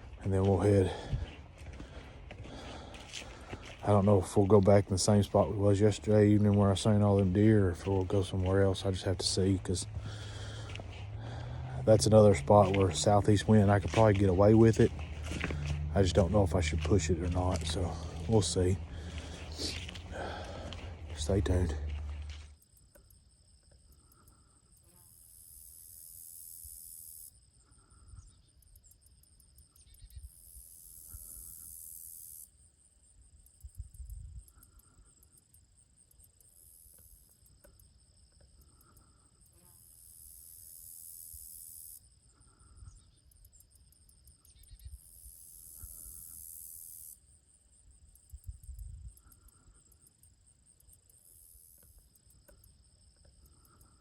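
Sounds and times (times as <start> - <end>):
faint low rumbles: 0.0 - 22.6
crickets trilling: 0.0 - 54.0.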